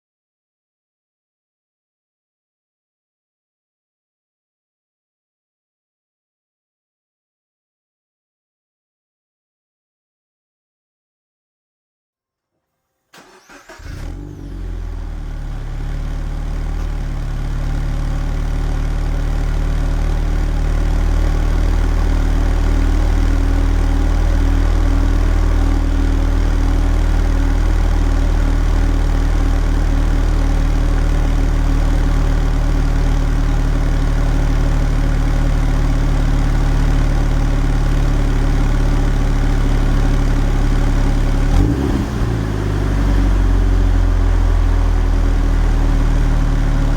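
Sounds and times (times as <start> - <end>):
car engine idling: 13.2 - 46.9
car engine starting: 13.2 - 46.9.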